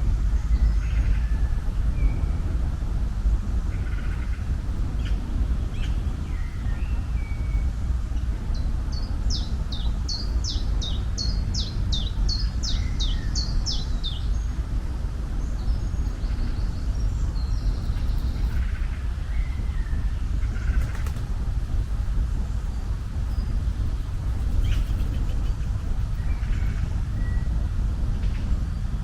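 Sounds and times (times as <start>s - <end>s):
steady low rumble: 0.0s - 29.0s
songbird singing: 8.5s - 14.6s.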